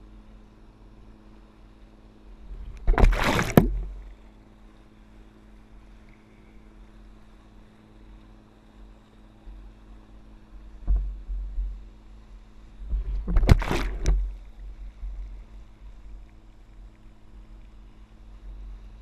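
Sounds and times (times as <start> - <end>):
motorboat engine hum: 0.0 - 19.0
rush of water or wind: 0.0 - 19.0.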